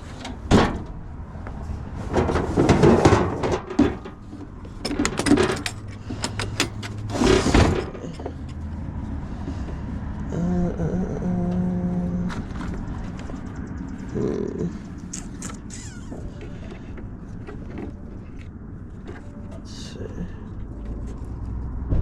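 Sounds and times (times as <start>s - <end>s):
metal tools clinking and rattling: 3.5s - 8.6s.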